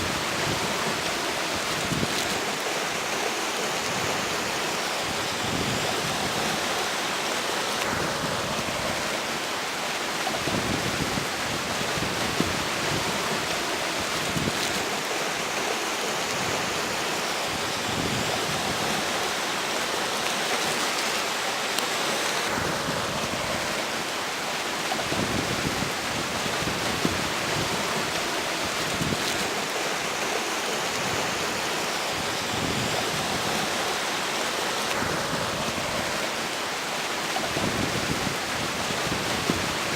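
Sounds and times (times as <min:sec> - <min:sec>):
river water rushing: 0:00.0 - 0:39.9
strong wind blowing: 0:10.2 - 0:15.5, 0:16.1 - 0:19.3, 0:22.4 - 0:34.4, 0:35.0 - 0:36.6, 0:37.3 - 0:39.9.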